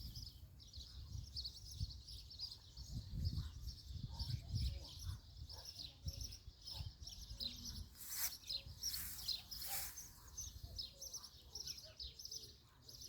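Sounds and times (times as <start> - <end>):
small birds chirping: 0.0 - 13.0
brief rustles: 8.0 - 10.2.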